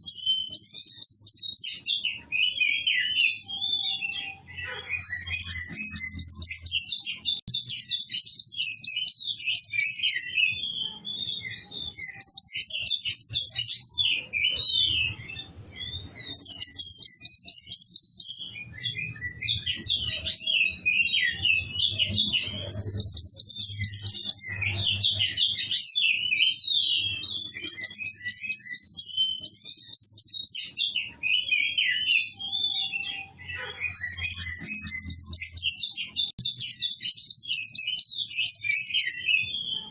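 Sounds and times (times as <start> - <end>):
songbird trilling: 0.0 - 39.9
songbird chattering twitters: 11.9 - 25.6.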